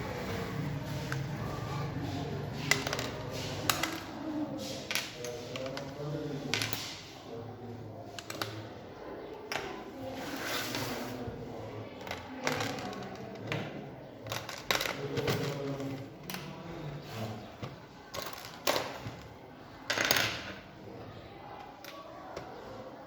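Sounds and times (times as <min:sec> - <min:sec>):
small hard parts clicking and clattering: 0:12.0 - 0:16.5.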